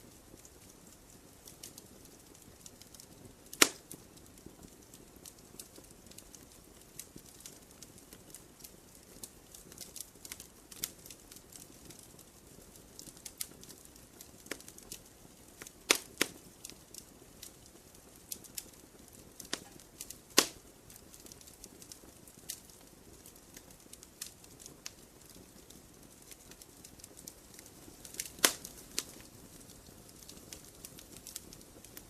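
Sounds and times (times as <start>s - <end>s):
campfire crackling: 0.0s - 32.0s.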